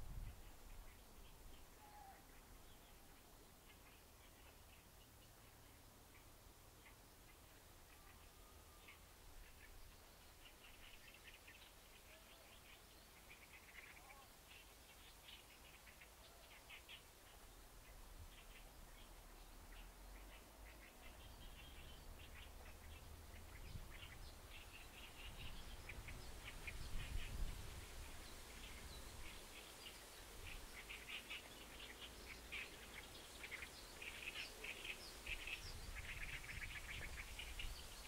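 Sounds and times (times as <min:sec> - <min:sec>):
songbirds chirping: 0:00.0 - 0:38.0.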